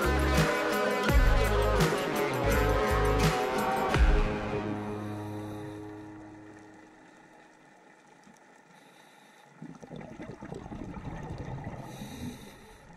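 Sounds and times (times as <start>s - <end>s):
scuba regulator breathing underwater: 4.8s - 6.2s, 11.6s - 12.9s
exhaust bubbles burbling: 9.5s - 12.9s.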